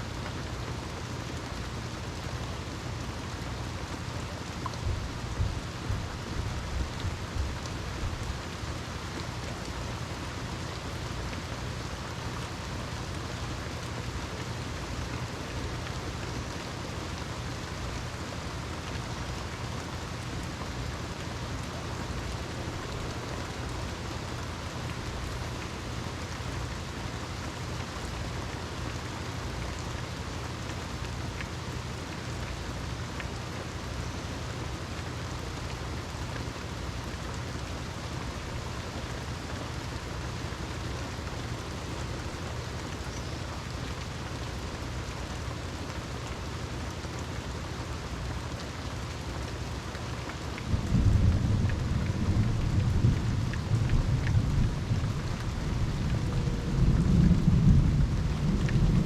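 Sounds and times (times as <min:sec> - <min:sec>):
steady rain falling: 0:00.0 - 0:59.0
thunder rumbling: 0:50.7 - 0:59.0.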